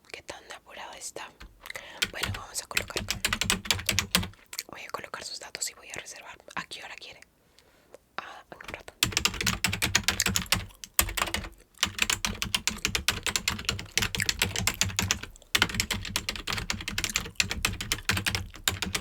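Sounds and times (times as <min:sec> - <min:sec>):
fast keyboard typing: 0:01.4 - 0:04.4, 0:08.6 - 0:19.0.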